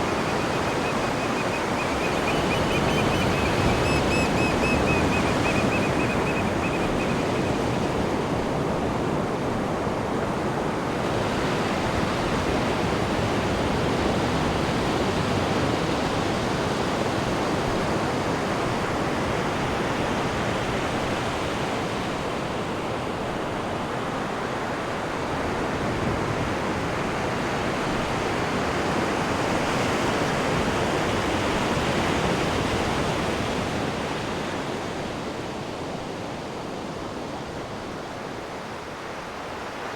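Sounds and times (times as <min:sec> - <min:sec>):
high steady whistling tone: 0:00.0 - 0:07.7
sea surf washing in: 0:00.0 - 0:10.1.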